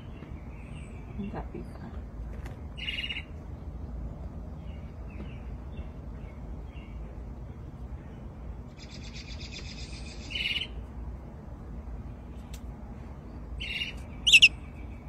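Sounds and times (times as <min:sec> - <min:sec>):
bird chirping and trilling: 0:02.8 - 0:03.3, 0:08.8 - 0:10.8, 0:13.6 - 0:15.0.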